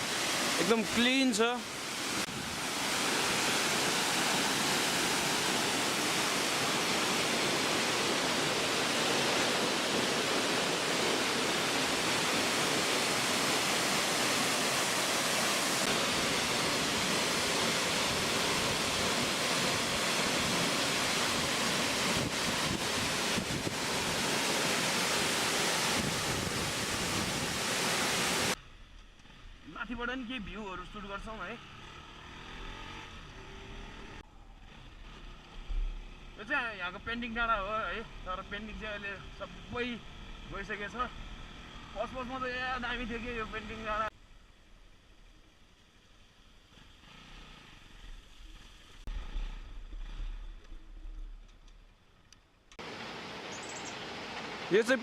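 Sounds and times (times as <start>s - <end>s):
small waterfall pouring: 0.0s - 28.6s.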